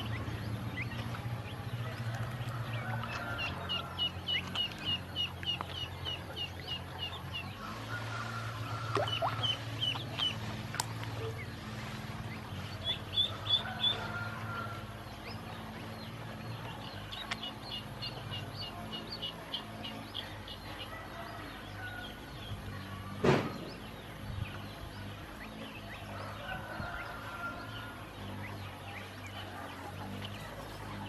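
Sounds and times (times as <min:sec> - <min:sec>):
ducklings peeping: 0:00.0 - 0:31.0
sharp knock: 0:23.2 - 0:23.7.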